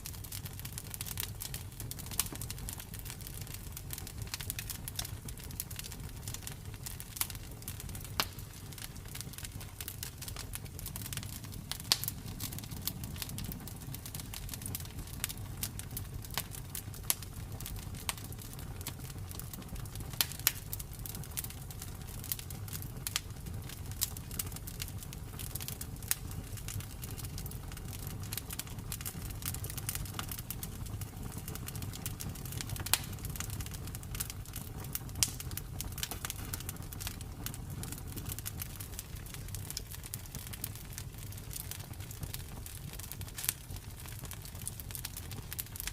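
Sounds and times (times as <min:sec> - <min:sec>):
campfire crackling and popping: 0:00.0 - 0:45.9.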